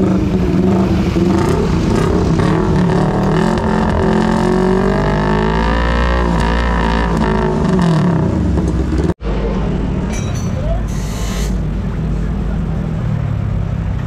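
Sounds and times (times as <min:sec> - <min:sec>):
vehicle engine revving: 0:00.0 - 0:10.0.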